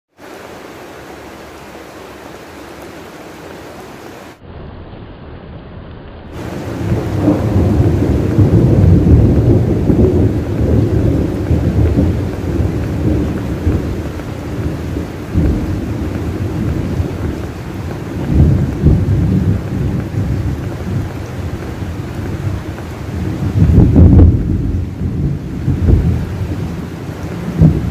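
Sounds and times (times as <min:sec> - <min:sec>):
steady rain: 0:00.1 - 0:27.9
rolling thunder: 0:06.3 - 0:27.9.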